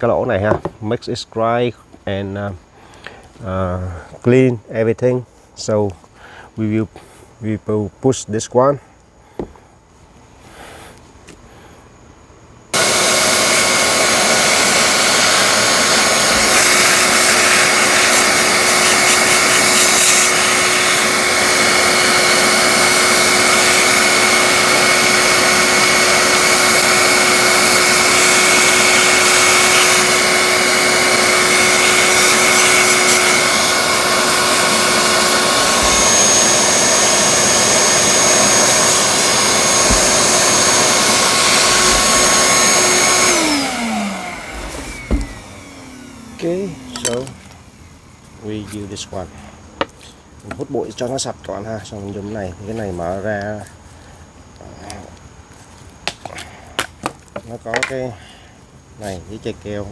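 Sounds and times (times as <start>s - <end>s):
vacuum cleaner whining: 12.7s - 51.0s.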